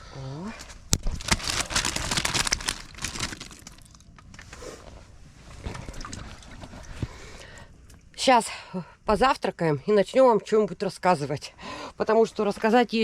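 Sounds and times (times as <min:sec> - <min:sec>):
crinkly material rustling: 0:00.6 - 0:07.0.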